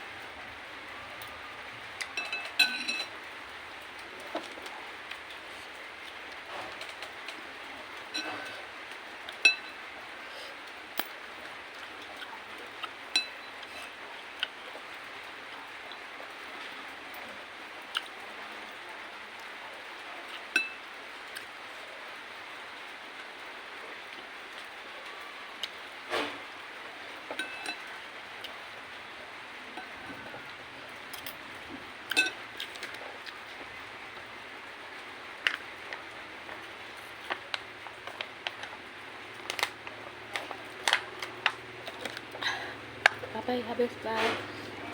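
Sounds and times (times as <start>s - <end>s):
spoon clinking against a bowl: 2.1s - 3.1s, 9.4s - 9.8s, 13.1s - 13.9s, 20.6s - 20.8s, 27.4s - 27.9s, 32.1s - 32.4s.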